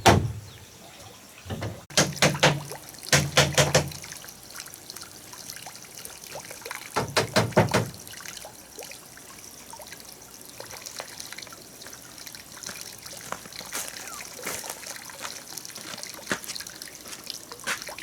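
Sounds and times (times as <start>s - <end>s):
sharp knocks: 0.0s - 0.5s, 1.5s - 4.0s, 7.0s - 8.0s
faint trickling: 8.0s - 18.0s.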